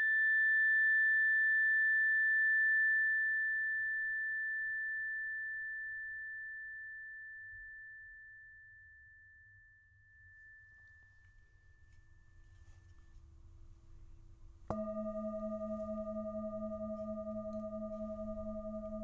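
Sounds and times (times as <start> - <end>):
tuning fork ringing: 0.0 - 12.7, 14.7 - 19.0
faint lower tone: 14.7 - 19.0.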